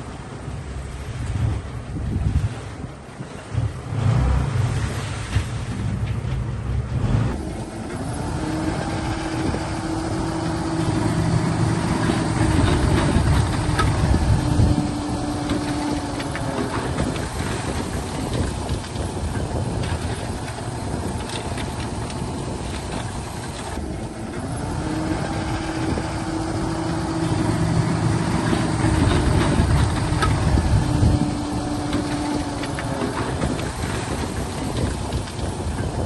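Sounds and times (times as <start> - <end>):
diesel machinery rumbling: 0.0 - 36.0
higher engine note: 6.9 - 17.9, 23.8 - 34.8.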